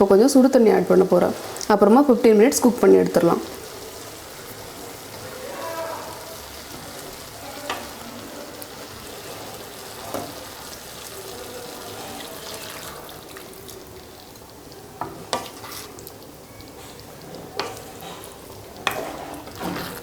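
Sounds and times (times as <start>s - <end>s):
curry sizzling in a pan: 0.0s - 20.0s
spoon stirring: 6.0s - 20.0s.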